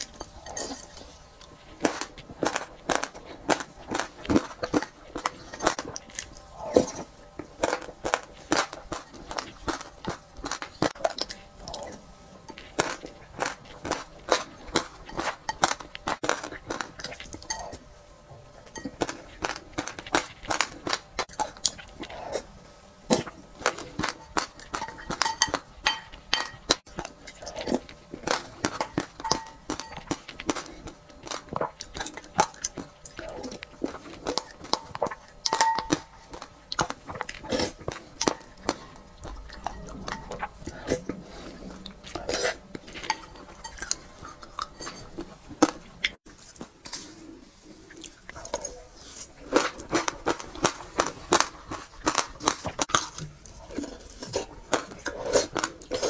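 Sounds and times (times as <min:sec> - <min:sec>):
crisp crunching and chewing: 0:00.0 - 0:17.8, 0:18.7 - 0:22.5, 0:23.1 - 0:56.0
spoon clinking against glass bowl: 0:24.8 - 0:26.7, 0:29.2 - 0:30.1, 0:35.5 - 0:36.2.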